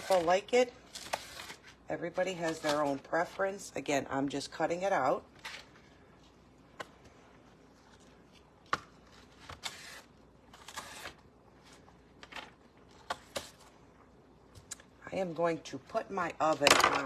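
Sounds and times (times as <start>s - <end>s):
kitchen knife cutting cabbage: 8.7s - 11.2s.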